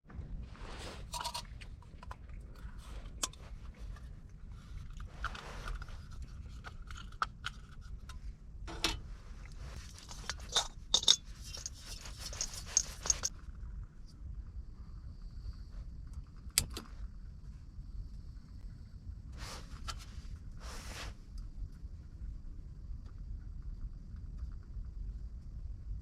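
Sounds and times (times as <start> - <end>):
steady low rumble: 0.0 - 26.0
objects handled clicking and knocking: 1.1 - 13.3.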